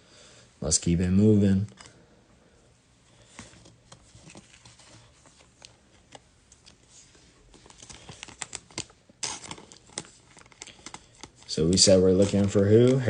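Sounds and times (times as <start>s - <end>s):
packaging rustling: 3.2s - 13.0s.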